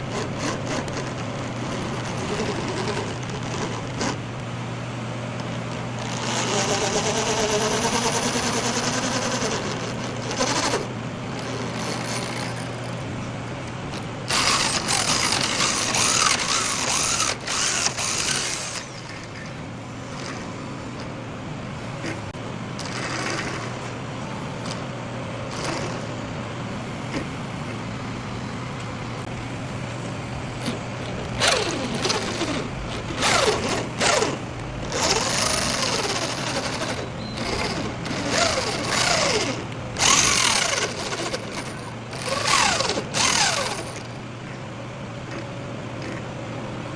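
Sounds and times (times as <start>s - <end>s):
workshop machinery humming: 0.0s - 46.9s
harsh machining noise: 5.7s - 12.9s, 14.2s - 21.0s, 22.8s - 24.0s, 25.5s - 26.2s, 30.6s - 44.2s.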